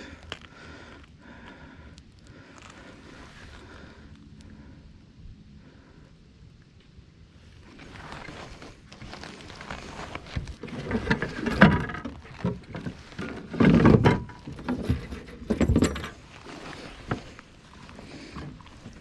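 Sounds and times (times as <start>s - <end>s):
knocks and rattling of gear: 7.8s - 19.0s.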